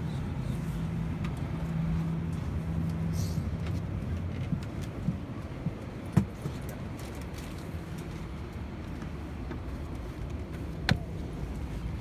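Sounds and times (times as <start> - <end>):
airplane cabin hum: 9.1 - 12.0.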